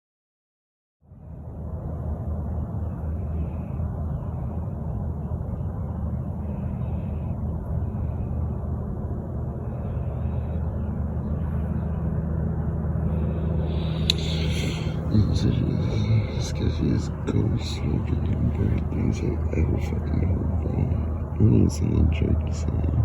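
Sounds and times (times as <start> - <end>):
low rumble: 1.1 - 23.0
faint bird calls: 13.1 - 21.4.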